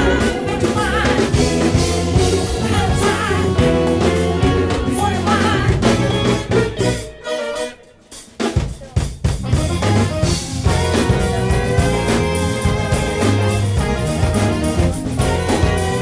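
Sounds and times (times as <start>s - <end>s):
live soul band playing: 0.0s - 16.0s.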